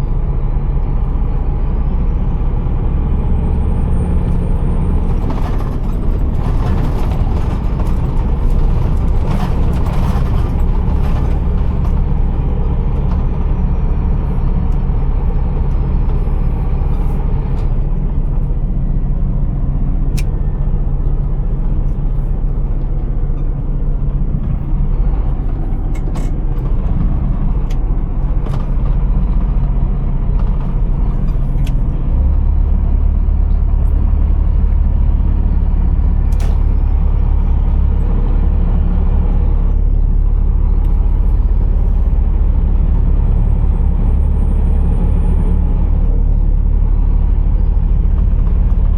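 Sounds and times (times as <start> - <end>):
truck diesel engine rumbling: 0.0 - 48.9.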